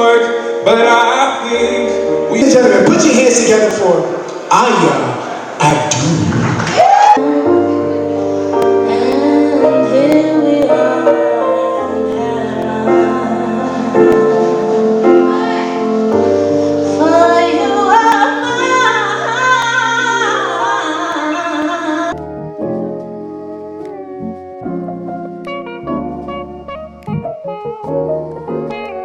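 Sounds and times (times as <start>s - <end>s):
keyboard chords: 0.0s - 5.6s, 7.2s - 29.0s
woman singing: 7.2s - 16.0s, 16.9s - 22.2s
bass line: 23.9s - 28.4s.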